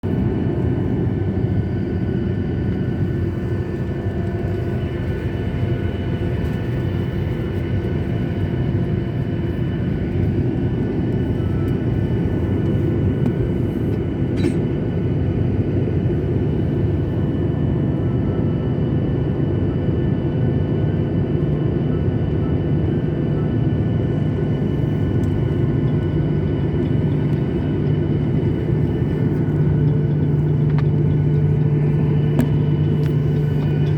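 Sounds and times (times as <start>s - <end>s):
jet engine rumble in cabin: 0.0s - 33.9s
steady whining tones: 21.9s - 33.9s.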